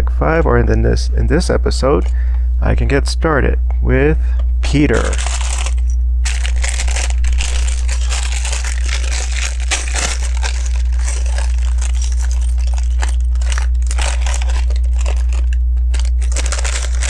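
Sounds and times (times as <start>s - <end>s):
steady low hum: 0.0s - 17.0s
plastic bag crinkling: 4.8s - 17.0s
plastic bricks clicking and rattling: 4.9s - 17.0s.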